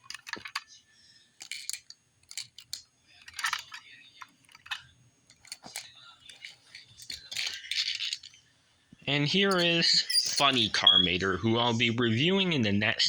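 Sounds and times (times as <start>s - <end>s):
toy car rattling scrape: 0.0s - 0.6s, 1.4s - 8.4s, 9.5s - 10.8s
toy cars clicking and clattering: 0.0s - 0.8s, 1.4s - 8.5s, 9.5s - 10.7s.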